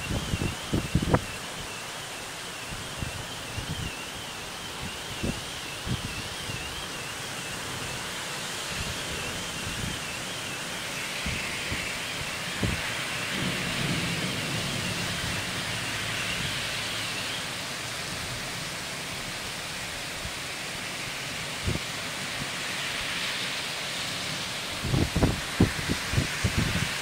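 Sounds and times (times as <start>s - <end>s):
heavy rain on street and cars: 0.0s - 27.0s
car tyres swishing through water: 11.1s - 24.8s.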